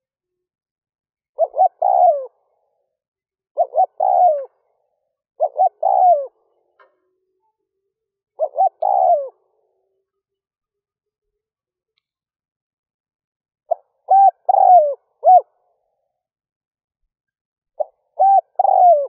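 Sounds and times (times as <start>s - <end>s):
dove cooing: 1.4s - 2.5s, 3.6s - 4.7s, 5.4s - 6.5s, 8.4s - 9.8s, 13.7s - 15.5s, 17.8s - 19.0s.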